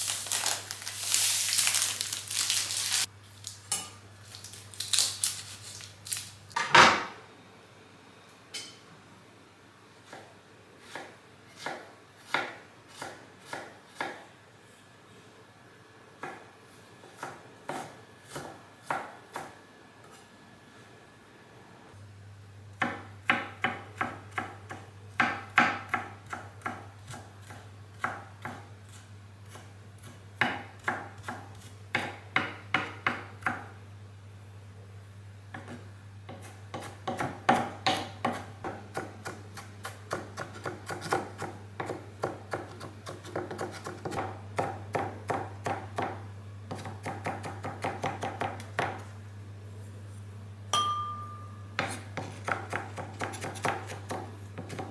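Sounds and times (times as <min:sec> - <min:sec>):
knife chopping on cutting board: 0:10.1 - 0:14.2, 0:35.5 - 0:49.0, 0:51.8 - 0:54.9.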